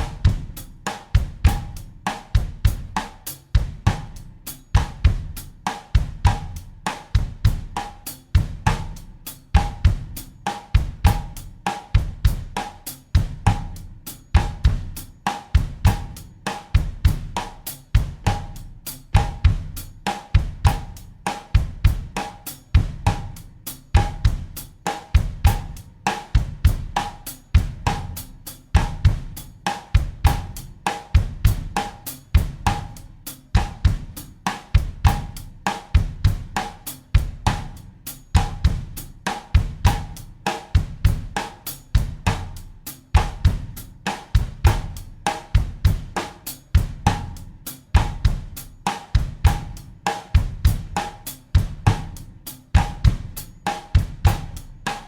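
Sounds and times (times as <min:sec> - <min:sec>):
drum kit bossa nova groove: 0:00.0 - 0:55.0.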